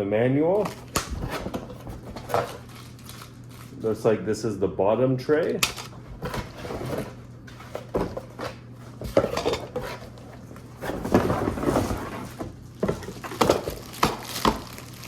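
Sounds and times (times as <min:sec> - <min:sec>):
plastic parts knocking and clattering: 0:05.6 - 0:15.0.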